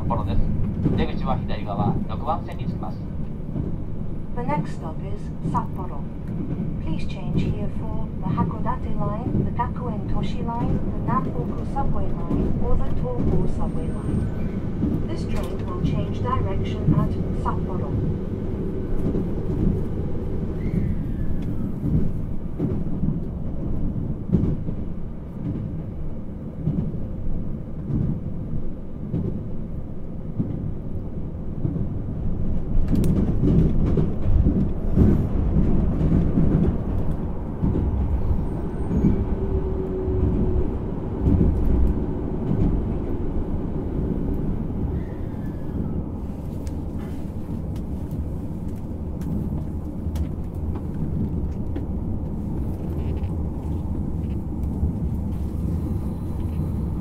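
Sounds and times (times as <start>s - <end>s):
rumble of wheels on rail: 0.0s - 57.0s
clicks and knocks from track: 32.8s - 38.0s.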